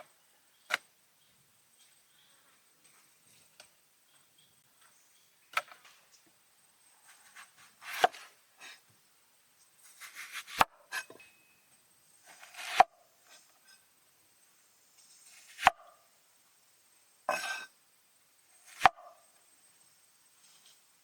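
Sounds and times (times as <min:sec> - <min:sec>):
knife slicing food: 0:07.1 - 0:08.8, 0:09.9 - 0:11.2, 0:12.3 - 0:12.9, 0:15.3 - 0:16.0, 0:17.3 - 0:17.7, 0:18.7 - 0:19.1.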